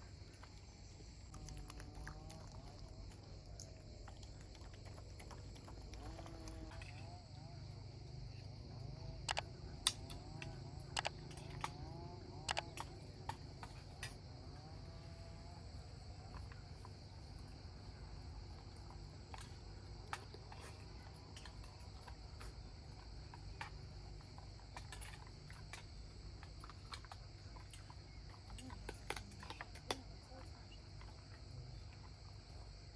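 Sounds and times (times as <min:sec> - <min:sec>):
high-pitched insect chorus: 0:00.0 - 0:32.9.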